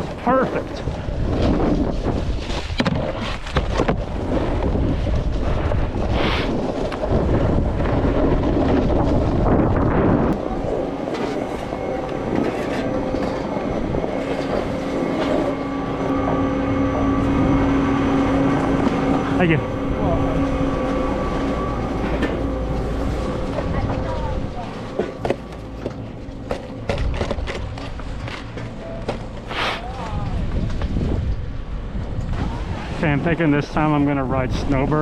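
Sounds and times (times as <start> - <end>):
snowboard scraping over snow: 0.0 - 16.2
wind on microphone: 0.0 - 28.5, 29.4 - 35.0
steady mechanical hum: 0.0 - 35.0.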